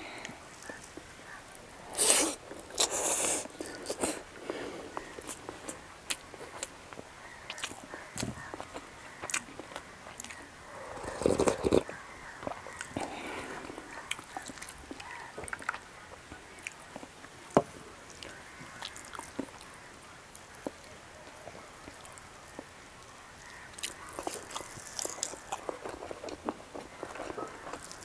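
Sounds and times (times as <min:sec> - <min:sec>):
chewing and mouth smacks: 0:07.5 - 0:10.4, 0:11.0 - 0:15.9, 0:23.8 - 0:28.0.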